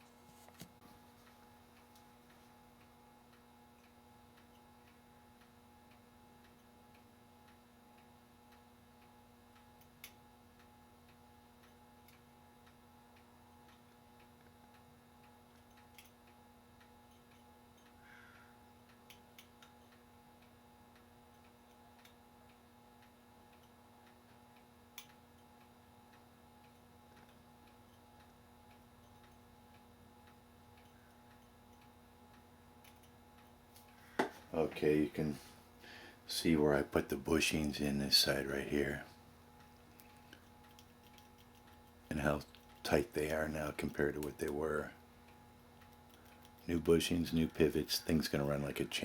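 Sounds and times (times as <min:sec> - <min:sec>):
faint steady hum: 0:00.0 - 0:49.0
small sharp clicks: 0:39.6 - 0:43.4.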